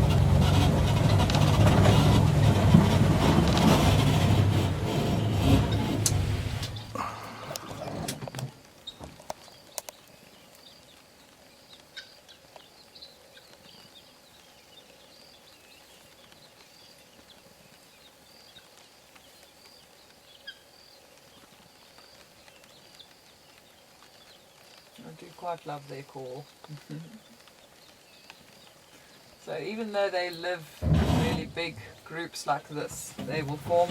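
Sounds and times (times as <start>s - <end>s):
small birds chirping: 6.6s - 30.8s.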